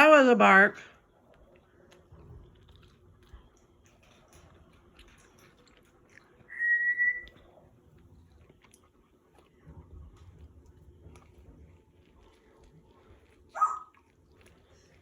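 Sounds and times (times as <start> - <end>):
parrot whistling: 6.5 - 7.4.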